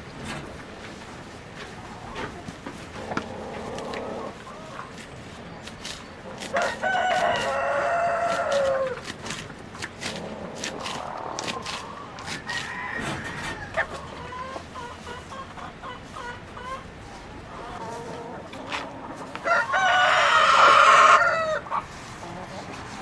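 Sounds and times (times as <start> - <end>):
chickens clucking: 0.0 - 23.0
rooster crowing: 6.5 - 9.0, 12.2 - 13.9, 19.4 - 21.6.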